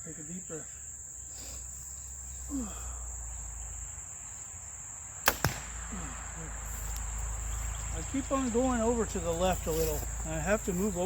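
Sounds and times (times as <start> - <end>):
crickets chirring: 0.0 - 11.0
arrow striking target: 5.2 - 5.8
bowstring snap: 5.2 - 5.8.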